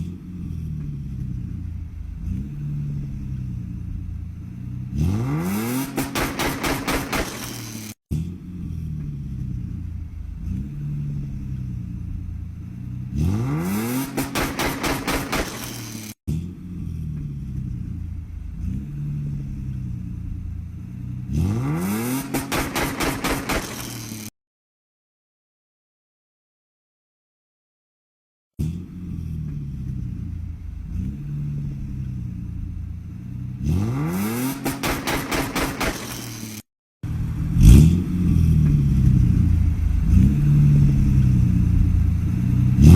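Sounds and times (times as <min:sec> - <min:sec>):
car engine idling and revving: 0:00.0 - 0:24.3, 0:28.6 - 0:42.9
exhaust cracks and bangs: 0:00.8 - 0:08.3, 0:08.9 - 0:16.2, 0:21.7 - 0:24.3, 0:29.5 - 0:36.6.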